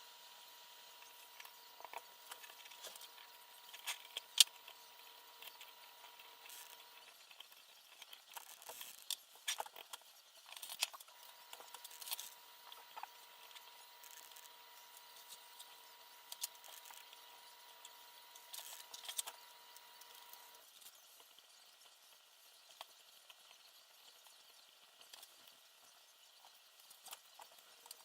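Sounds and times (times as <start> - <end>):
faint steady whine: 0.0 - 28.0
small parts clicking and rustling: 1.0 - 22.0.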